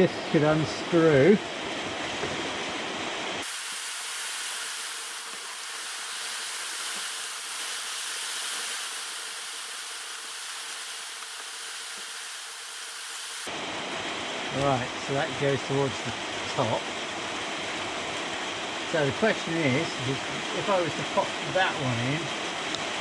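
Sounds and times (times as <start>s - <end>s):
faint steady hum: 0.0s - 23.0s
steady hiss: 3.2s - 13.5s.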